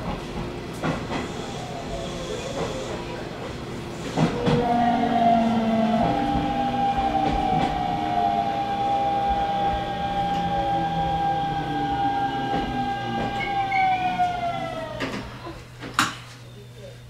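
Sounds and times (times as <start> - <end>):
train track rumble: 0.0 - 15.8
electric train motor whine: 3.8 - 15.4.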